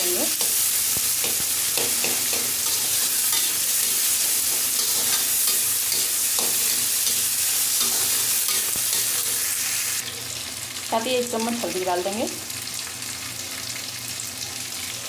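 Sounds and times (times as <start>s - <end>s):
vegetables sizzling in hot oil: 0.0s - 15.0s
spatula scraping pan: 1.2s - 9.5s.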